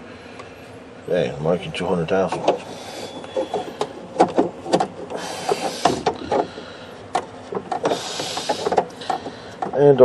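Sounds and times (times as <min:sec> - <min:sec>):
rubbing and scraping: 0:02.3 - 0:09.5.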